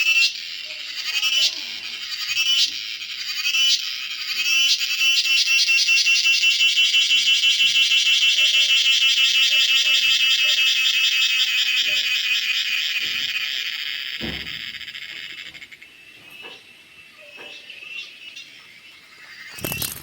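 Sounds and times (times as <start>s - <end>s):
cicada buzzing: 0.0s - 20.0s
low thump: 14.2s - 14.6s.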